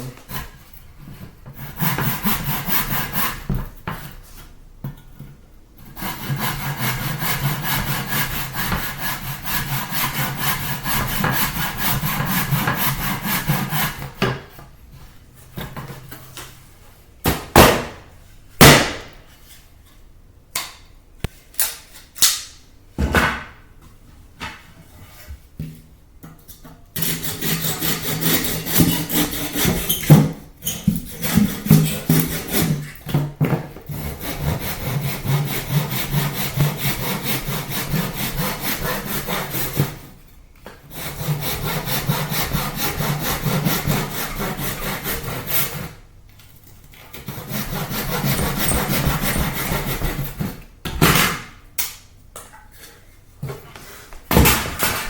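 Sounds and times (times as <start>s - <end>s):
saw cutting a board: 33.9s - 40.0s, 40.9s - 45.9s, 47.3s - 50.4s.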